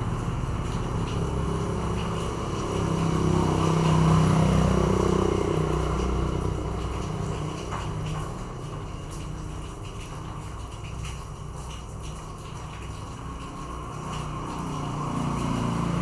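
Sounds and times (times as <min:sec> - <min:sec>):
vehicle engine passing by: 0:00.0 - 0:07.7, 0:14.0 - 0:16.0.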